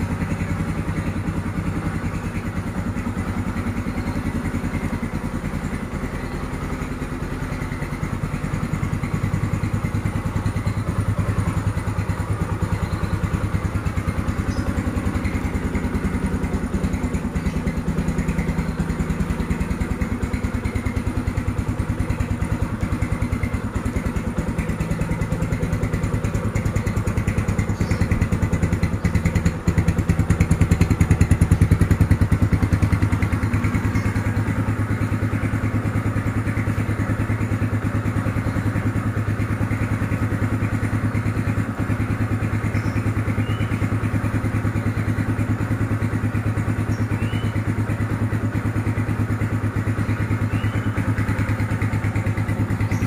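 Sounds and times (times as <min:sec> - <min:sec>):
motorcycle engine idling: 0:00.0 - 0:53.0.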